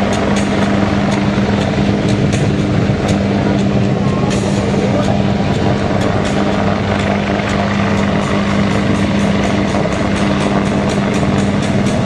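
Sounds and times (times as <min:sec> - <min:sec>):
helicopter hovering: 0:00.0 - 0:12.0.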